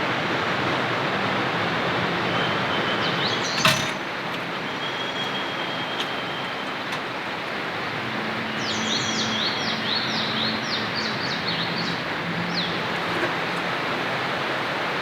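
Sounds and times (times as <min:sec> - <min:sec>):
bird singing high notes: 0:04.6 - 0:06.7.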